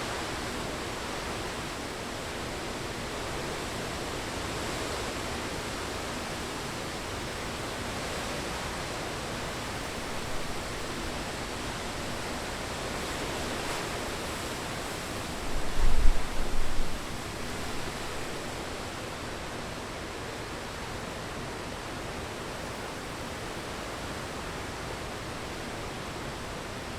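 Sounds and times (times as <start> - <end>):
heavy rain: 0.0 - 26.9
wind: 0.0 - 26.9
wind buffeting the microphone: 13.3 - 18.6.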